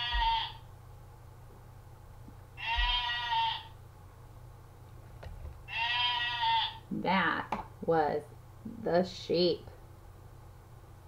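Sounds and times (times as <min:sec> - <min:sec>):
recorded sheep bleat: 0:00.0 - 0:00.6, 0:02.6 - 0:03.7, 0:05.7 - 0:06.8.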